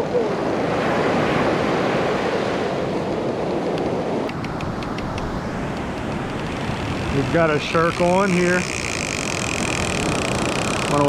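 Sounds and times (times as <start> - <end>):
surf breaking on a beach: 0.0 - 11.0
wind on microphone: 0.0 - 11.0
faint ticks: 3.7 - 11.0.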